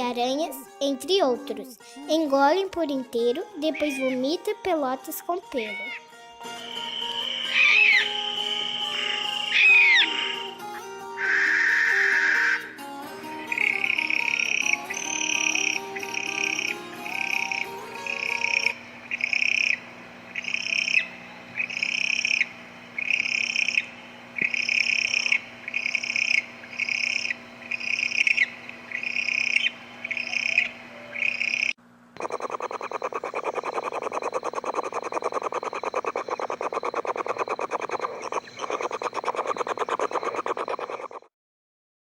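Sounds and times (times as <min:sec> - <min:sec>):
fast-pulsing animal trill: 0:06.8 - 0:10.5, 0:14.2 - 0:19.7, 0:31.4 - 0:41.3
high animal call: 0:06.8 - 0:10.6, 0:11.2 - 0:12.7, 0:29.2 - 0:41.3.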